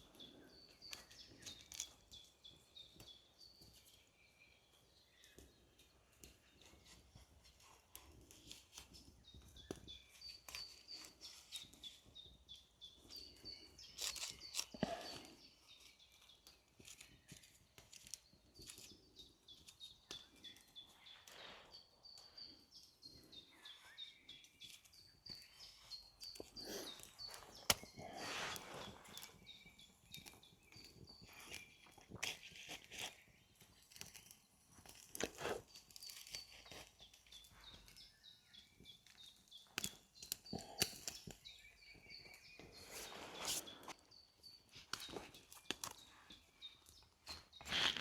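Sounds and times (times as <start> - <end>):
small birds chirping: 0.0 - 48.0
rustling or crunching: 25.6 - 37.5, 44.8 - 48.0.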